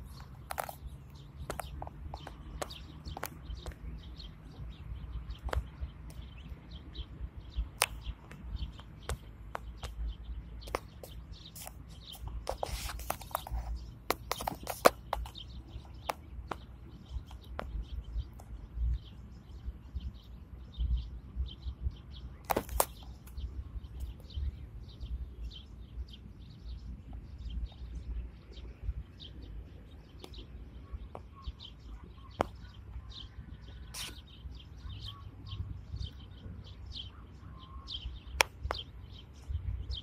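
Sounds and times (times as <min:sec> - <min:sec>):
sharp clicks: 0:00.1 - 0:03.8, 0:07.8 - 0:10.0.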